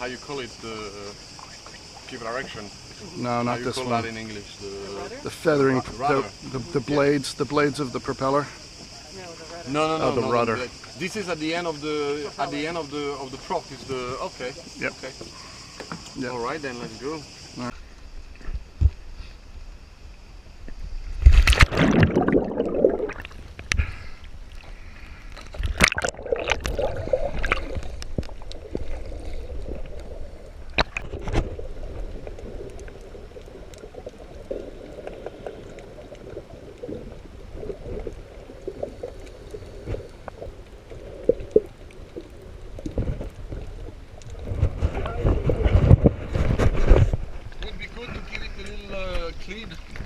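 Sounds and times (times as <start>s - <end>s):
water gurgling and sloshing: 18.2s - 50.0s
diver splashing into water: 21.2s - 23.4s.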